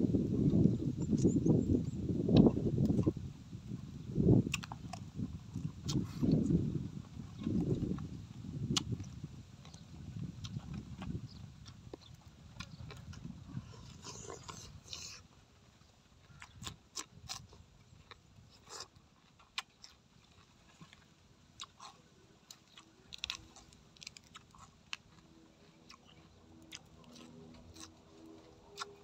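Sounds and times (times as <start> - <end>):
man chewing food: 0.4 - 29.0.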